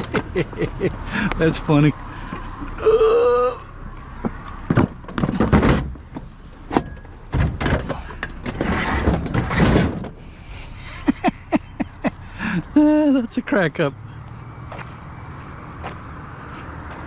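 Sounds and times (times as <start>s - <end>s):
scrap knocking and clattering: 4.2s - 10.2s.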